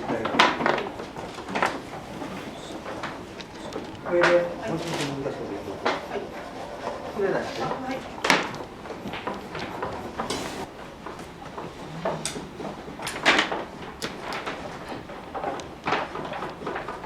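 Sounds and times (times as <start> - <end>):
faint scraping: 0.8 - 10.7.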